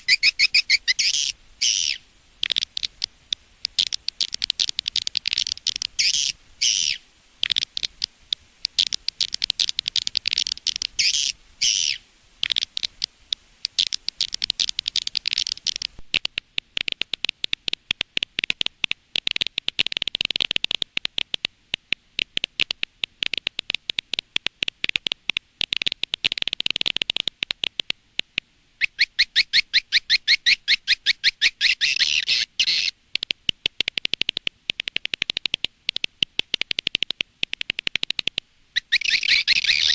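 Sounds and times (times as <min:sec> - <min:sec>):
fast clicking trill: 0:00.0 - 0:08.1, 0:13.7 - 0:16.0
swiftlet chittering calls: 0:00.0 - 0:16.0, 0:28.8 - 0:32.9, 0:38.8 - 0:39.9.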